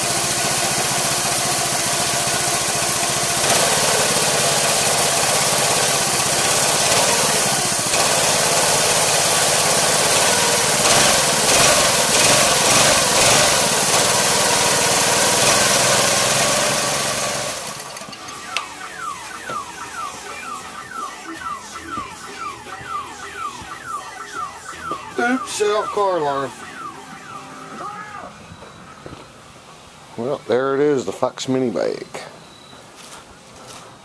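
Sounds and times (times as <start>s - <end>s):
small gasoline engine running: 0.0s - 18.1s
car alarm warbling: 0.7s - 30.5s.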